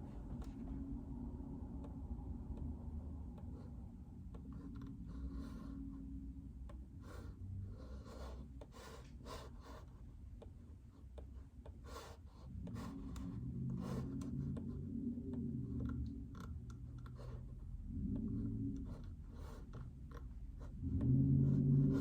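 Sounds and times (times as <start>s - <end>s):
low rumble: 12.7s - 22.0s.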